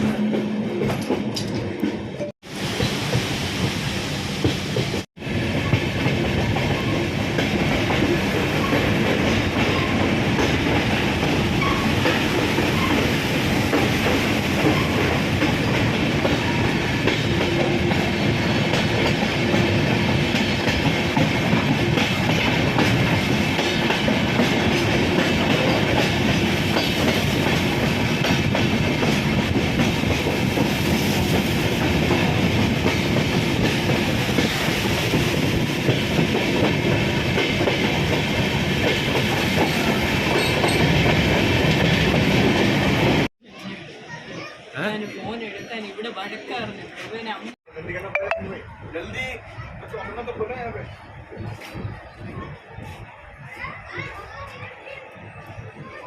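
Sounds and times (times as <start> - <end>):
train rumbling: 0.0 - 43.3.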